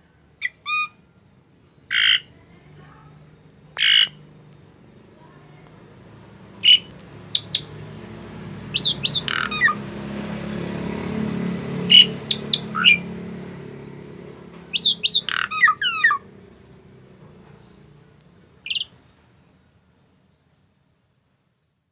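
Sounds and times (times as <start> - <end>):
bird squawks and whistles: 0.4 - 1.0, 6.6 - 7.7, 8.8 - 9.8, 11.9 - 13.0, 14.7 - 16.2.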